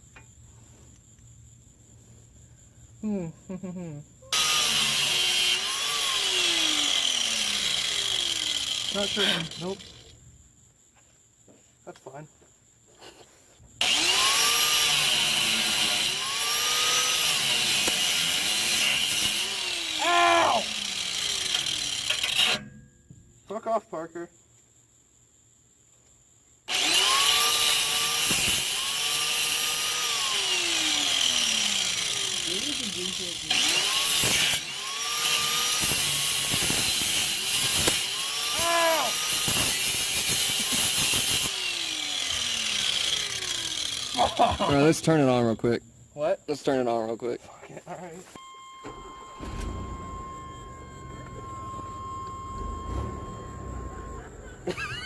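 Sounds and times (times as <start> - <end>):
angle grinder cutting metal pipe: 4.3 - 10.1, 13.8 - 22.8, 26.7 - 45.0
motor tone sliding down: 48.5 - 54.8.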